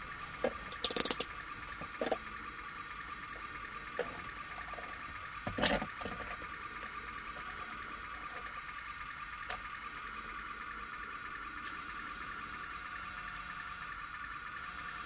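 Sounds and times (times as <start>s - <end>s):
clicks and clatter: 0.4s - 2.2s
toy motor whining: 0.6s - 1.3s.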